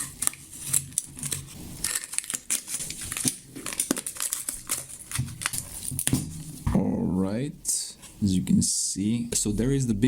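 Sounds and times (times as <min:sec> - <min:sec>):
paper tearing and crumpling: 0:00.0 - 0:06.2.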